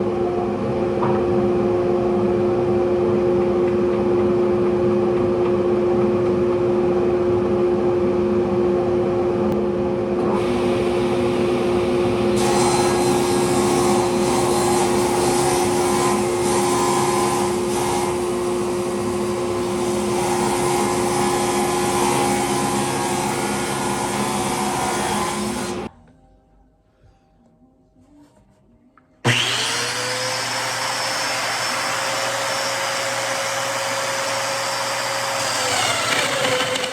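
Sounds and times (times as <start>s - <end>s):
power tool motor hum: 10.4s - 25.9s, 29.2s - 36.9s
tool working wood: 10.4s - 25.9s, 29.3s - 36.9s.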